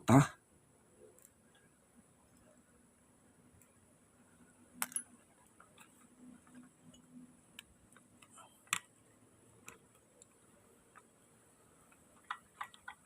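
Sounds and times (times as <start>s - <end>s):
small metal parts clicking: 4.8s - 5.2s.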